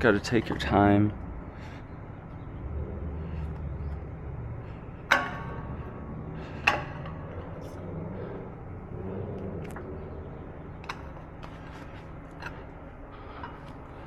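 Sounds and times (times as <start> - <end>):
low steady hum: 0.0 - 14.0
metal parts clanking: 5.0 - 7.8.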